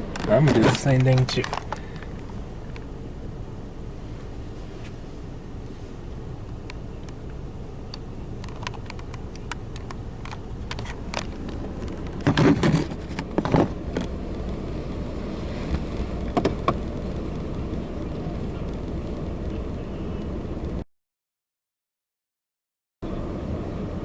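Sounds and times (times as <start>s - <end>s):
car engine idling: 0.0s - 20.8s
sharp clicks: 7.9s - 12.2s.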